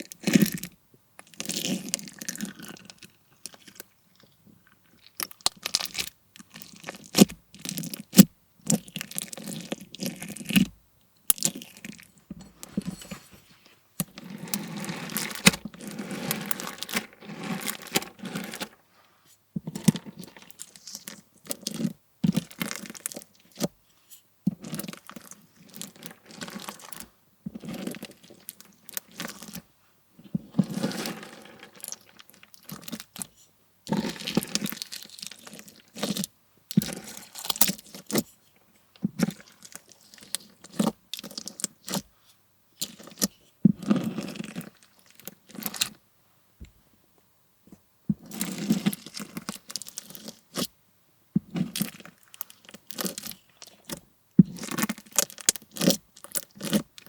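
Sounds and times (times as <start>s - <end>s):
bead slime crunchy crackling: 14.0s - 18.8s, 19.6s - 23.7s, 24.5s - 29.6s, 30.2s - 33.3s, 33.9s - 38.3s, 48.2s - 50.7s, 51.5s - 57.0s.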